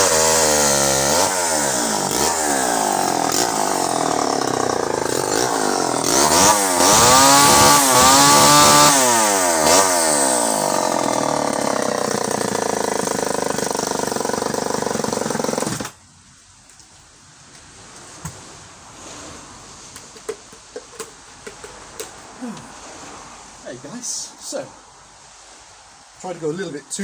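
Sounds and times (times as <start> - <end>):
chainsaw revving: 0.0 - 16.0.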